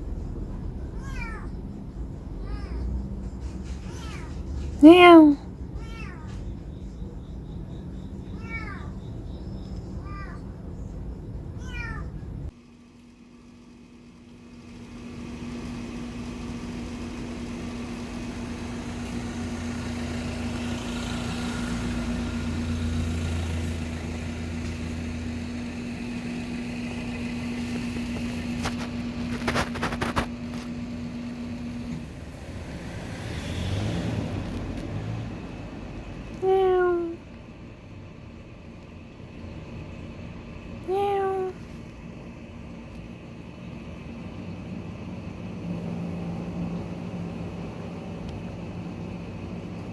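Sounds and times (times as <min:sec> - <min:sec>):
car passing: 0:17.0 - 0:28.8, 0:32.0 - 0:36.3.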